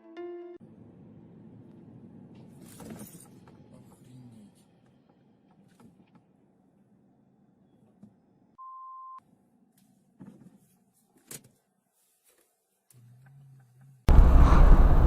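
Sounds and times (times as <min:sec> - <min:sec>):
plucked background music: 0:00.0 - 0:00.6.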